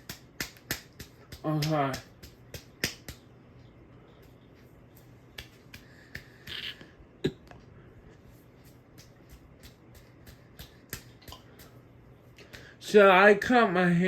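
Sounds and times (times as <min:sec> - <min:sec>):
ceiling fan motor hum: 0:00.0 - 0:14.0.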